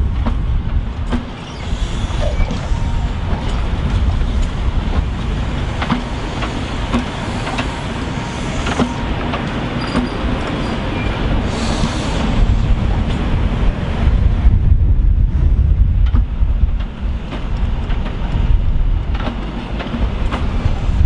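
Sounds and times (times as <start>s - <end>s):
diesel train rumbling: 0.0s - 21.0s
sharp clicks and knocks: 0.2s - 1.4s, 2.5s - 7.7s, 19.1s - 20.5s.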